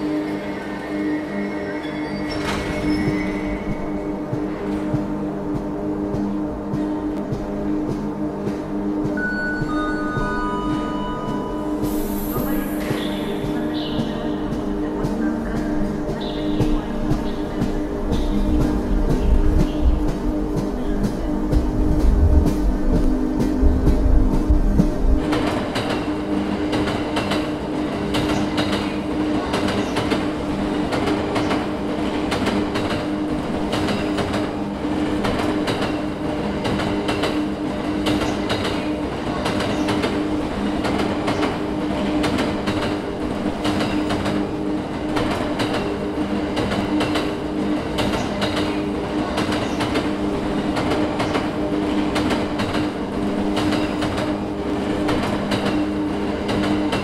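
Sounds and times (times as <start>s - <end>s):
train wheels clacking over rails: 2.3s - 57.0s
steady rolling hum: 3.6s - 28.2s.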